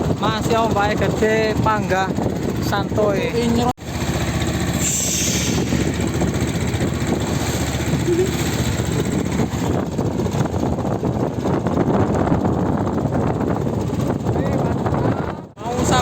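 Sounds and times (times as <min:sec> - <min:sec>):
small boat engine running: 0:00.0 - 0:16.0.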